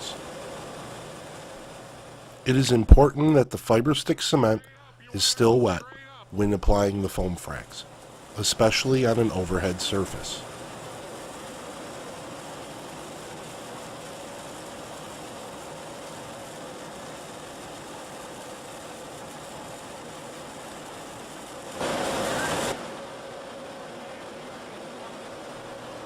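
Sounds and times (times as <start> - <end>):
spraying machine hum: 0.0 - 26.0
rushing air hiss: 21.7 - 22.9.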